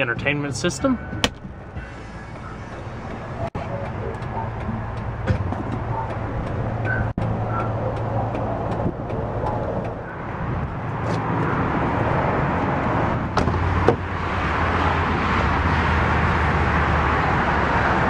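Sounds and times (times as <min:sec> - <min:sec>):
engine idling: 0:01.2 - 0:12.1.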